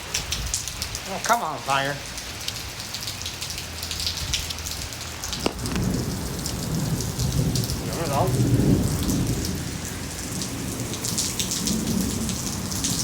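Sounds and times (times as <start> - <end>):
heavy rain pouring: 0.0 - 13.0
thunder crack and rumble: 5.4 - 13.0.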